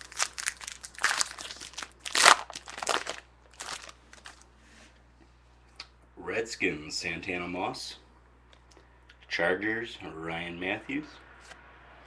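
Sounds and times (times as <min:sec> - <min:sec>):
wrapper being torn and crinkled: 0:00.0 - 0:04.4.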